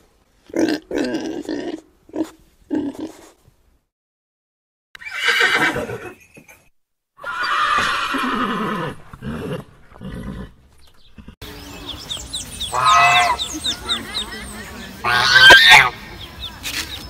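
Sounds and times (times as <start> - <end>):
horse neighing: 5.0 - 6.2, 7.2 - 10.6
high chirping animal calls: 10.9 - 17.0.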